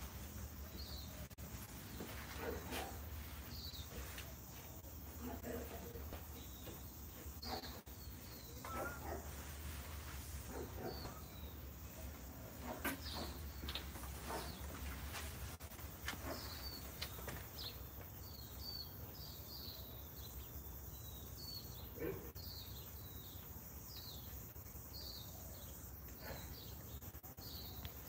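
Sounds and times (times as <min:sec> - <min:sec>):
small bird chirping: 0:05.9 - 0:09.9.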